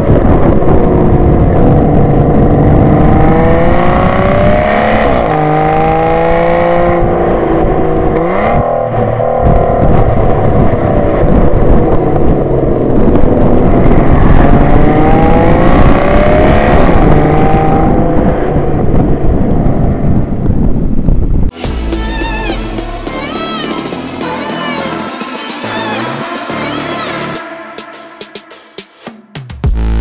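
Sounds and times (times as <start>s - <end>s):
wind and trail noise: 0.0s - 21.6s.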